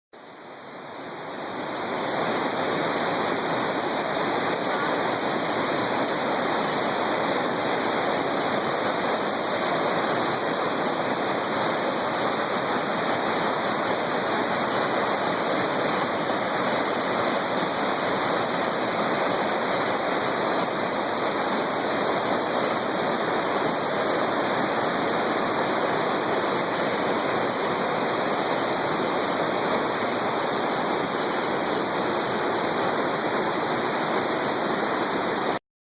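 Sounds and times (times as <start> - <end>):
rushing water: 0.2 - 35.6.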